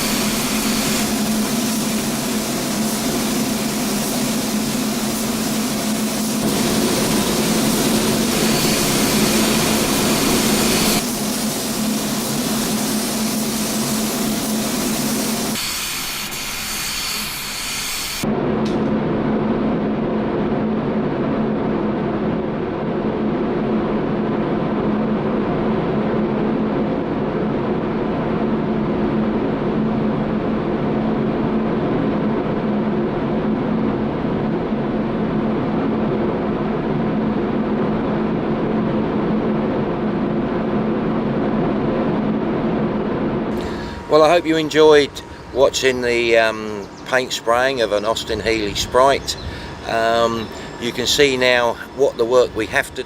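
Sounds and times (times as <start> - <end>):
spray booth air system rushing: 0.0 - 18.2.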